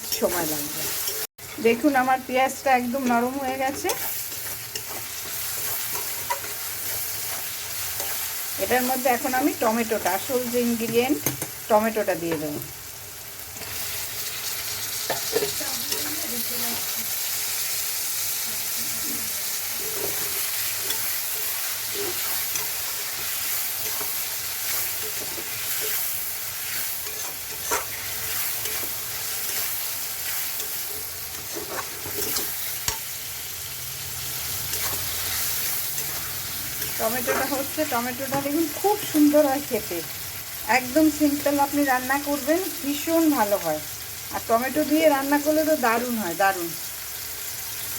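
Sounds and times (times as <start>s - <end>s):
food sizzling in a pan: 0.0s - 47.9s
spatula scraping a pan: 3.0s - 8.4s, 19.7s - 33.0s, 34.7s - 37.8s.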